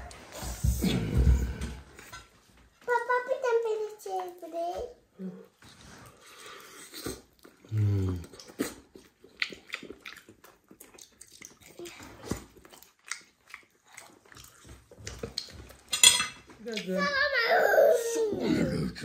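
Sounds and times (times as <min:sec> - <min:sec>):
chewing and lip-smacking: 0:06.1 - 0:15.9
low vocal mmm: 0:07.6 - 0:08.5.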